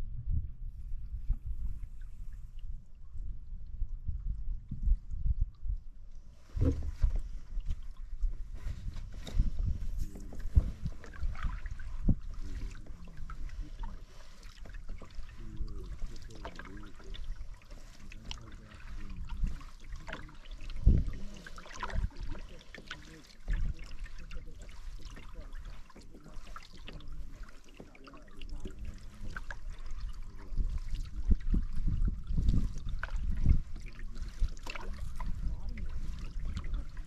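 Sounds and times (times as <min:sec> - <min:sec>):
water splashing off paddle: 0:06.3 - 0:37.0.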